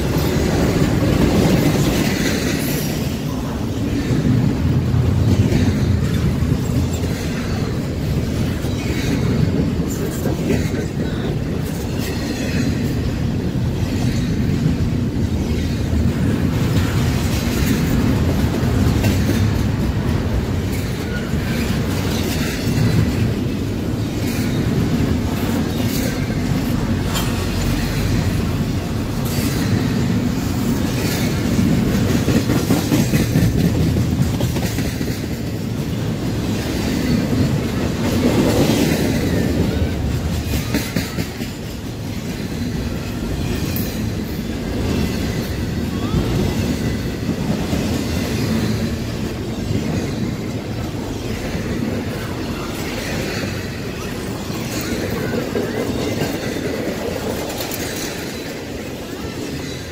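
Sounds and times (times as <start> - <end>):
train wheels rumbling on rail: 0.0 - 59.9
wheels clacking over rail joints: 0.0 - 59.9.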